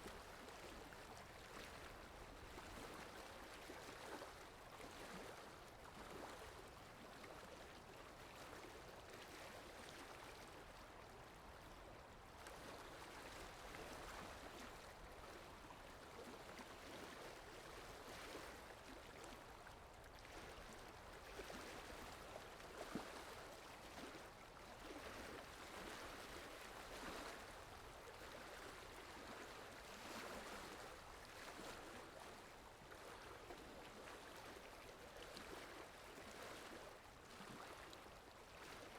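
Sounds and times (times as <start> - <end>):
faint rushing water: 0.0 - 38.9.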